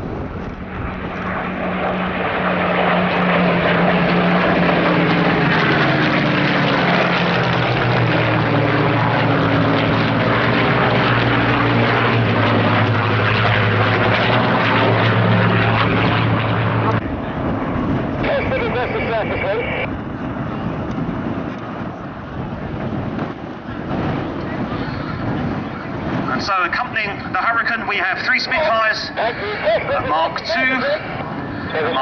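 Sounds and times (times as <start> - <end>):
propeller plane engine flying past: 0.0 - 32.0.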